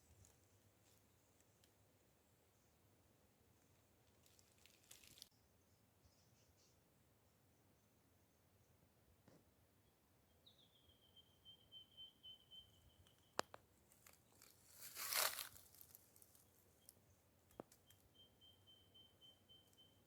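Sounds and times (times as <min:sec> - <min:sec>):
crunchy rustle: 0:03.6 - 0:05.3, 0:13.4 - 0:17.0.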